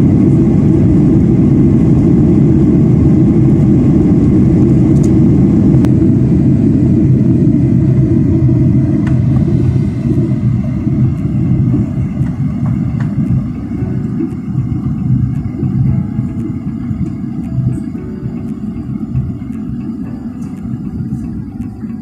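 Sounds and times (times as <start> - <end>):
jet cabin rumble: 0.0 - 22.0.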